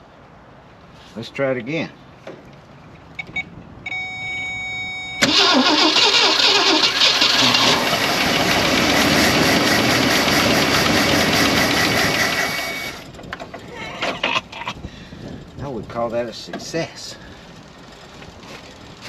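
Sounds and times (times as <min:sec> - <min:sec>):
car engine cranking: 0:05.2 - 0:14.4
engine running loud: 0:07.0 - 0:13.1.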